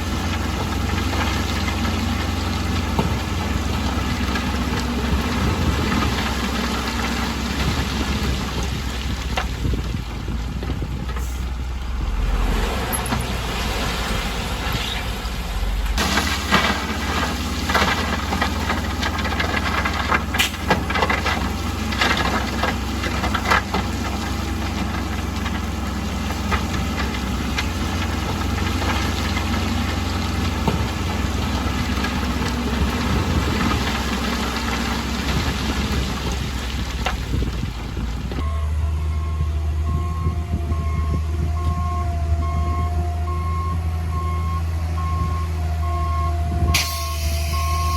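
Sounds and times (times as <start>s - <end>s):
bulldozer diesel engine: 0.0s - 47.9s
irregular knocks and clatter: 15.9s - 38.4s.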